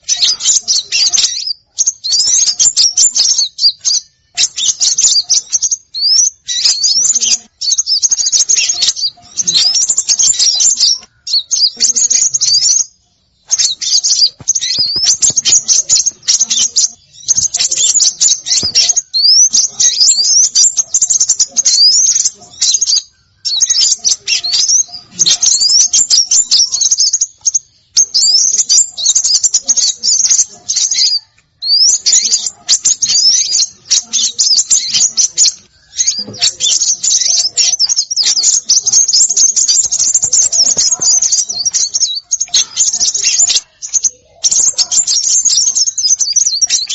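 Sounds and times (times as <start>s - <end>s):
songbirds chattering and calling: 0.0s - 46.9s.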